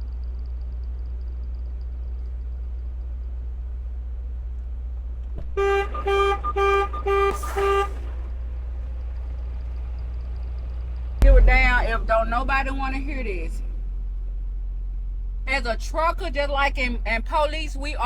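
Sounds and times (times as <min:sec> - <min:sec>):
low hum: 0:00.0 - 0:18.0
vehicle horn toots: 0:05.5 - 0:08.2.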